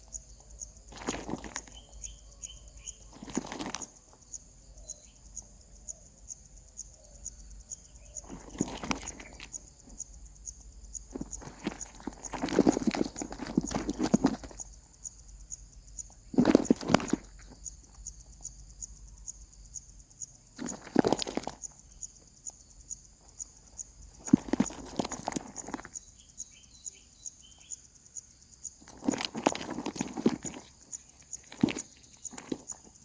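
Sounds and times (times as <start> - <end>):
nestlings rustling and scratching: 0.1 - 4.3, 7.7 - 18.2, 20.5 - 26.9, 28.6 - 33.0.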